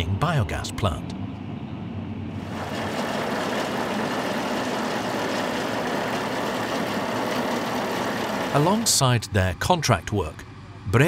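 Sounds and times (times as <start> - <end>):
heavy farm machinery running: 2.3 - 11.0.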